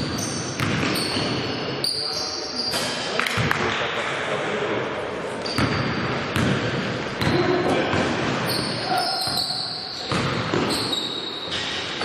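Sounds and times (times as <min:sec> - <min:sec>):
basketball bouncing: 0:00.0 - 0:01.4, 0:05.5 - 0:08.2, 0:09.2 - 0:10.8
sneaker squeaks on floor: 0:00.0 - 0:03.0, 0:05.4 - 0:06.4, 0:08.4 - 0:12.0
players' voices: 0:06.8 - 0:09.5.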